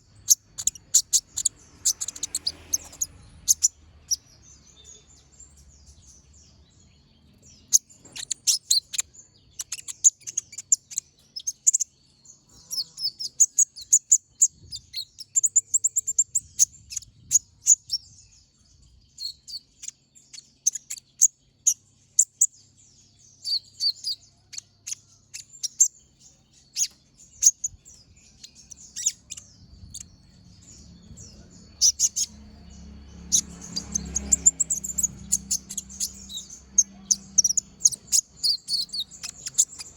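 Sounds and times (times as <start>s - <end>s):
bird chirping and trilling: 0.0s - 39.9s
low background rumble: 25.9s - 39.9s.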